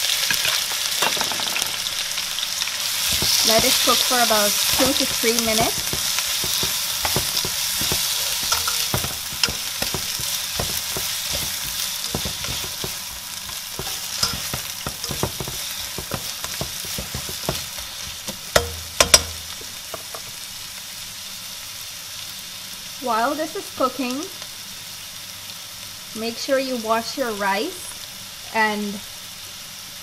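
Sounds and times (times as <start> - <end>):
spices sizzling in hot oil: 0.0 - 30.0
spatula scraping pot: 2.9 - 20.4
sharp knocks: 4.7 - 13.2, 13.8 - 20.3.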